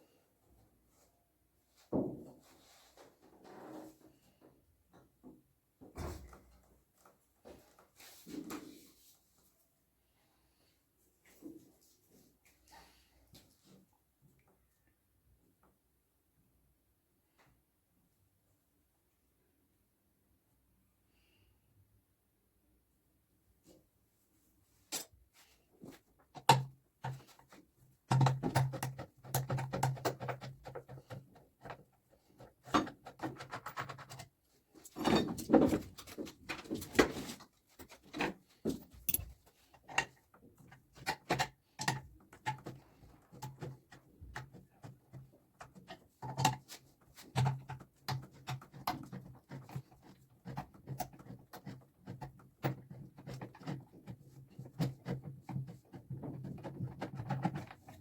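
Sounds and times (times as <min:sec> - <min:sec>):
hand tools clicking and knocking: 0:28.1 - 0:37.1, 0:37.8 - 0:58.0.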